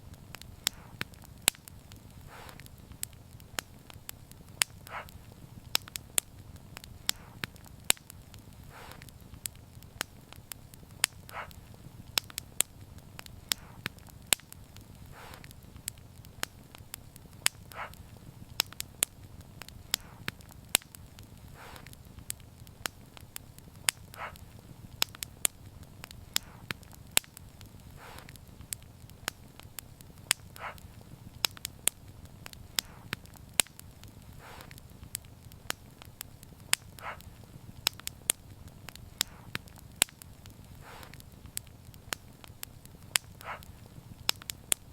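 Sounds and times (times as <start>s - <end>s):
wood fire crackling: 0.0s - 44.9s
soft hissing puff: 0.1s - 9.4s, 10.0s - 23.1s, 23.7s - 25.0s, 25.9s - 26.9s, 27.7s - 28.6s, 32.6s - 33.3s, 34.1s - 36.2s, 39.0s - 39.9s, 40.5s - 41.4s.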